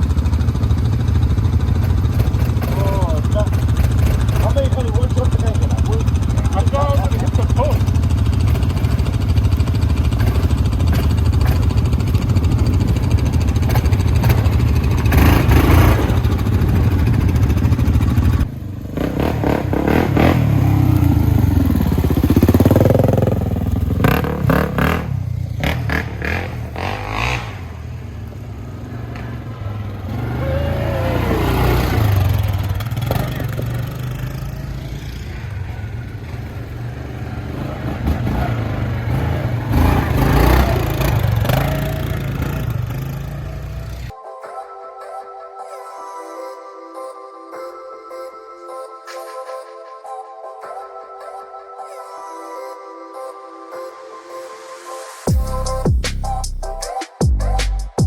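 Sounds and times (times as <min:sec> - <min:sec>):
off-road vehicle engines revving: 0:00.0 - 0:44.1.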